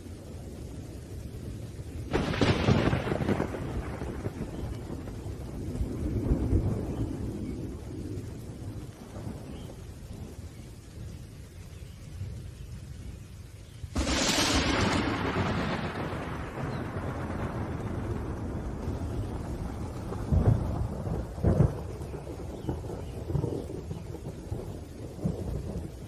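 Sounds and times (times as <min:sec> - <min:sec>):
rolling thunder: 0:00.0 - 0:11.2, 0:13.9 - 0:26.0
rain: 0:00.0 - 0:26.0
sharp thunderclap: 0:02.1 - 0:09.8, 0:13.9 - 0:26.0.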